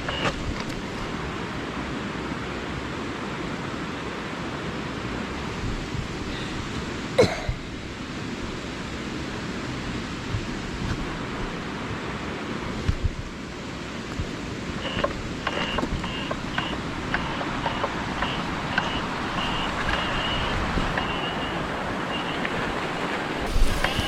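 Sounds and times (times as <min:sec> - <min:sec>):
mountain bike tyres rolling: 0:00.0 - 0:01.2, 0:14.0 - 0:24.0
wind rushing: 0:23.2 - 0:24.0.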